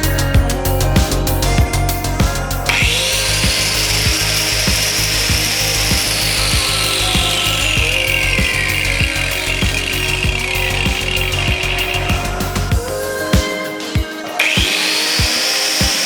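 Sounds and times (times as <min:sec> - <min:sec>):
angle grinder whining: 0:00.0 - 0:16.0
music beat: 0:00.0 - 0:16.0.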